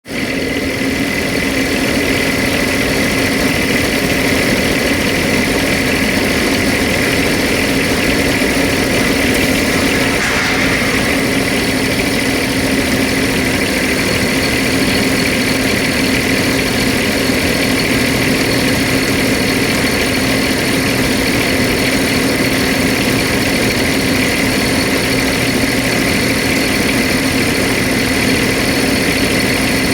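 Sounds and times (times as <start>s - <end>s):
refrigeration unit diesel engine idling: 0.0s - 29.9s
high whine: 4.1s - 16.0s.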